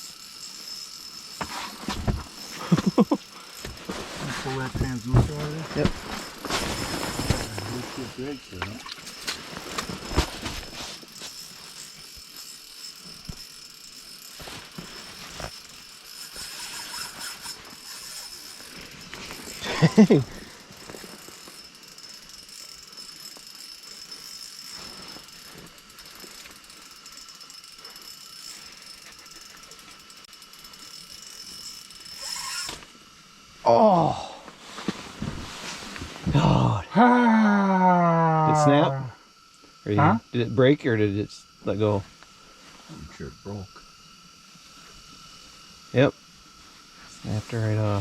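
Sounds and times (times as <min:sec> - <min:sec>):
fishing reel ratcheting and clicking: 0:00.0 - 0:06.6, 0:07.3 - 0:33.5
faint high whine: 0:00.0 - 0:48.0.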